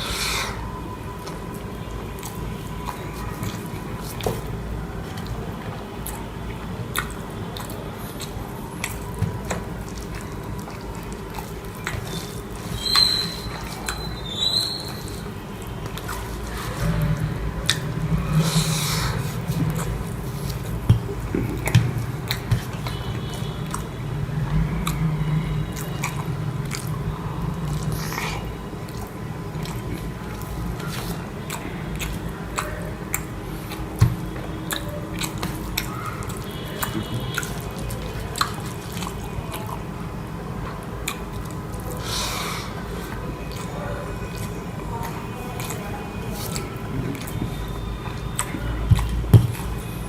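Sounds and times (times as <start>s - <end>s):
person chewing food: 0.0s - 50.0s
steady low hum: 14.8s - 50.0s.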